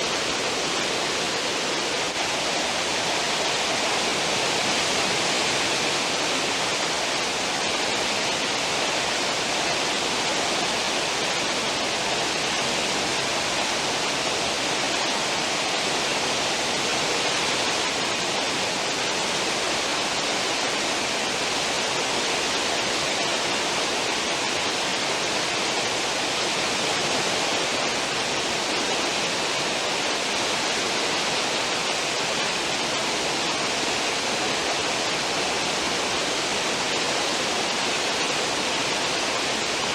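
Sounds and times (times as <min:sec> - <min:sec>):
churning water of ship wake: 0:00.0 - 0:39.9.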